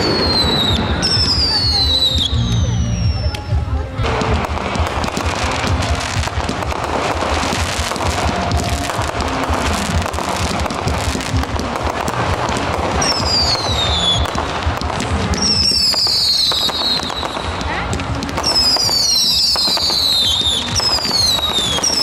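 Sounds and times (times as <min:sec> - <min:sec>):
firework whistles gliding down: 0:00.0 - 0:03.5
fireworks crackling and popping: 0:00.0 - 0:22.0
low firework booms: 0:00.0 - 0:22.0.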